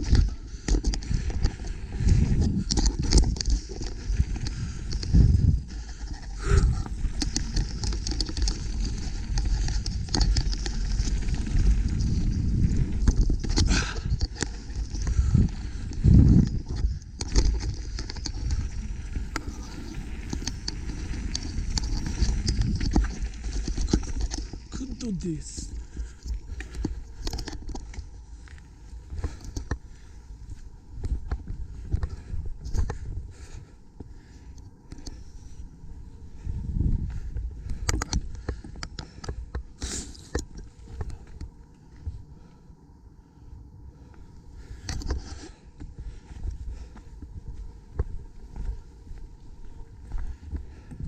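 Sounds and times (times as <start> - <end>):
bike rattling and clicking: 0.0 - 24.8, 25.6 - 51.0
wind buffeting microphone: 0.0 - 24.8, 25.7 - 51.0.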